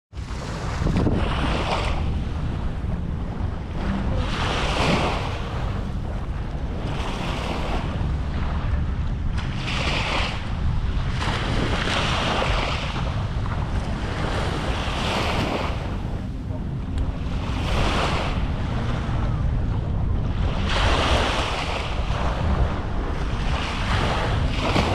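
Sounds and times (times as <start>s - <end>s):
wind rumble on microphone: 0.1s - 24.9s
small waves breaking on sand: 0.2s - 2.5s, 9.3s - 16.0s, 20.6s - 24.9s.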